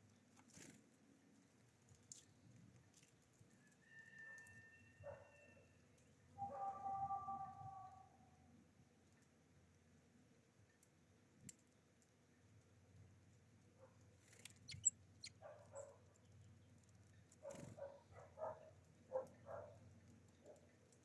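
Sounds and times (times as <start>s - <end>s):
small birds chirping: 14.2s - 18.8s.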